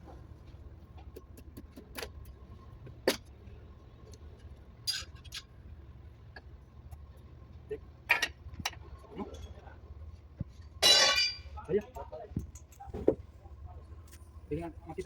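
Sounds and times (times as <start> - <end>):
low steady hum: 0.0 - 15.0
metal tools clinking: 10.8 - 11.5.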